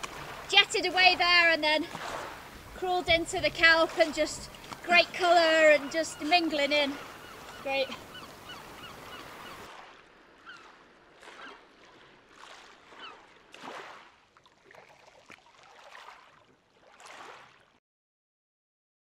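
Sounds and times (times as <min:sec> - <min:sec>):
soft water splashes: 0:00.0 - 0:17.8
birds giving short calls: 0:04.7 - 0:09.7.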